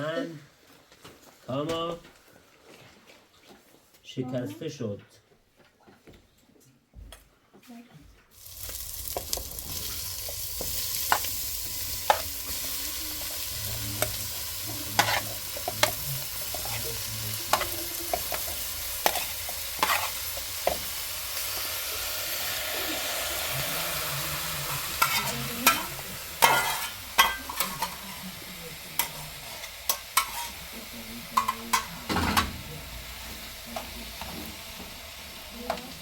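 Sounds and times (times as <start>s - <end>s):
food sizzling in hot oil: 8.3s - 36.0s.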